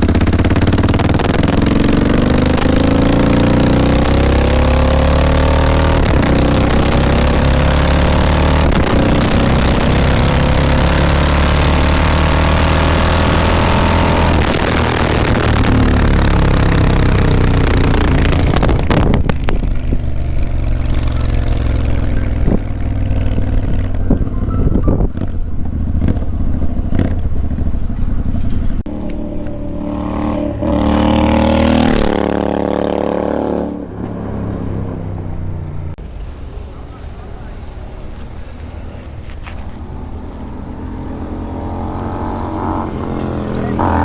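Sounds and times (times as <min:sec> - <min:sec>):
exhaust pops: 0:00.0 - 0:32.8
motorcycle engine revving: 0:00.0 - 0:36.0, 0:39.4 - 0:44.0.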